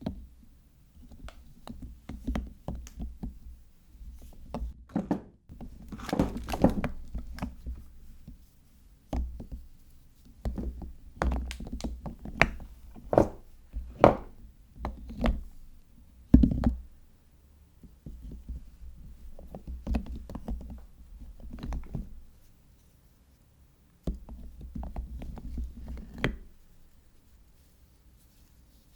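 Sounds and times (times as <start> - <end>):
handling noise: 4.3 - 8.4, 11.6 - 14.5
soap bars knocking on hard surface: 4.9 - 7.8, 10.4 - 15.4.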